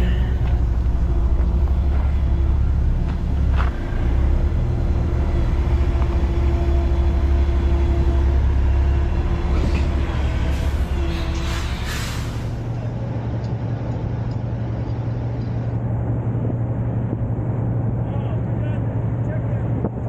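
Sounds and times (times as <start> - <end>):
diesel truck engine rumbling: 0.0 - 20.0
air hissing: 10.5 - 12.8.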